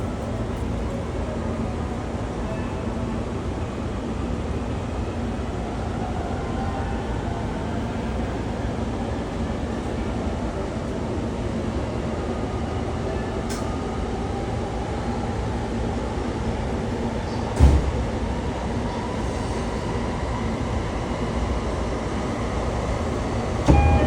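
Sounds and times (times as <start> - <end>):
train interior rumble: 7.0 - 24.0
sharp clunk: 23.7 - 24.0.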